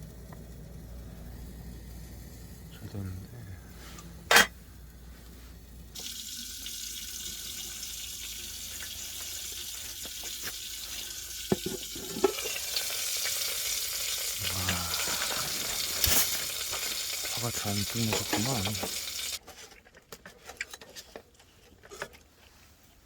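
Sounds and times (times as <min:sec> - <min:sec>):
fire hissing: 0:00.0 - 0:08.3, 0:12.4 - 0:19.4.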